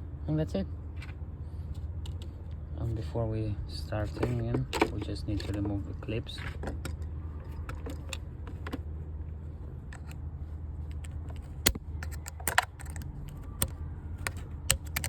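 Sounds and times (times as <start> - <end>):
steady low hum: 0.0 - 15.0
tool clicking on metal clips: 10.9 - 15.0.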